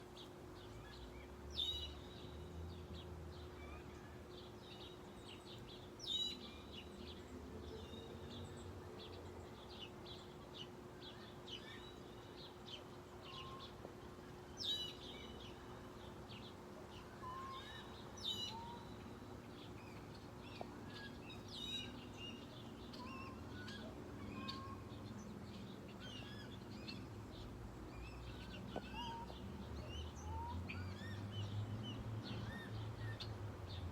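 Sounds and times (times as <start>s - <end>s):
songbirds chirping: 0.0s - 33.9s.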